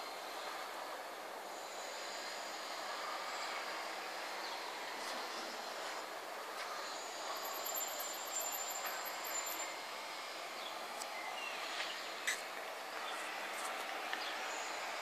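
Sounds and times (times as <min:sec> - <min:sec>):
faint chirps: 0:06.8 - 0:09.9.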